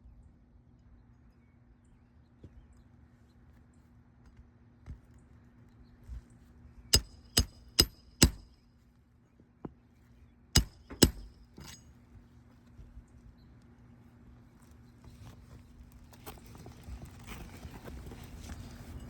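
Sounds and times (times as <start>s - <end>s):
hammer driving nails with metallic ring: 7.0s - 8.5s, 10.6s - 11.8s.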